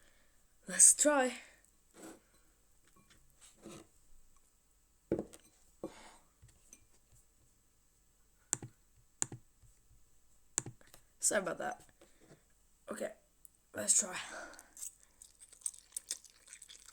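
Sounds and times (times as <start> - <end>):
sharp clicks: 8.5 - 9.4, 10.6 - 10.8.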